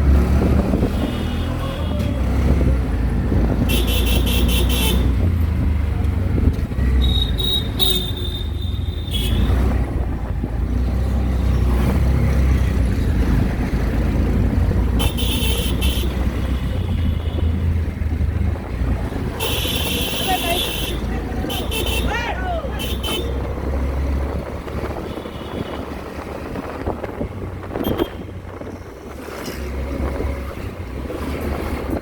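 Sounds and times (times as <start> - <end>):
engine and road rumble: 0.0 - 32.0
vehicle horns honking: 0.9 - 2.2, 3.6 - 5.2, 7.0 - 9.8, 14.9 - 17.7, 19.3 - 23.6, 24.9 - 26.0, 27.7 - 28.4.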